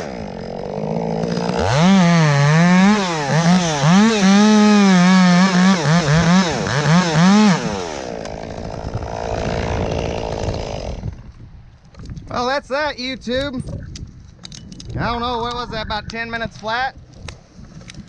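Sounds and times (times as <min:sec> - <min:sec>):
chainsaw cutting wood: 0:00.0 - 0:11.4.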